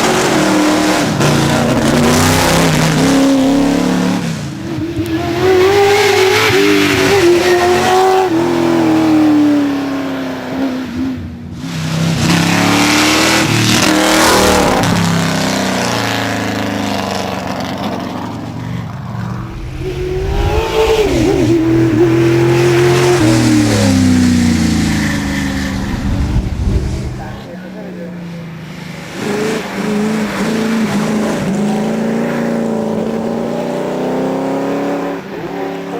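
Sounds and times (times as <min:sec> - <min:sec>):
race car engine accelerating: 0:00.0 - 0:35.9.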